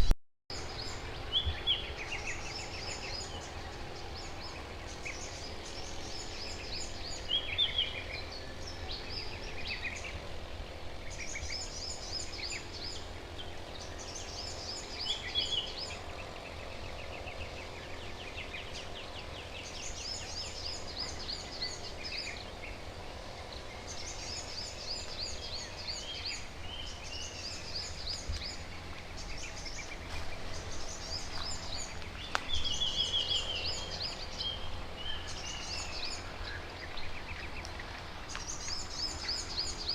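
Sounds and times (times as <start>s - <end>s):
steady low rumble: 0.0s - 39.9s
birds chirping and trilling: 0.5s - 39.9s.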